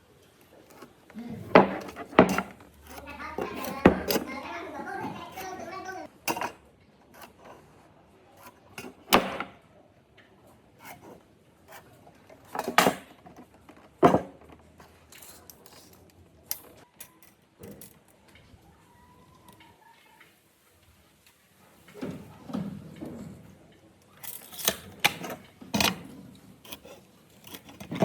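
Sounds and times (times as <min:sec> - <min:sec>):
hard objects knocking and clattering: 0:00.7 - 0:06.6, 0:12.4 - 0:15.6.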